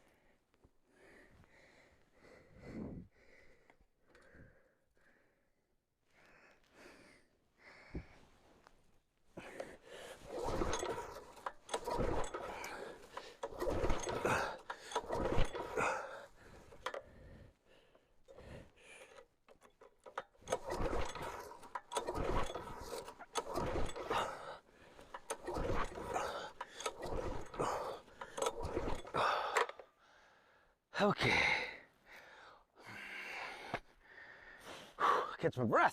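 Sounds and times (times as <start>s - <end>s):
recoil cord pull-start yanks: 9.4s - 30.1s.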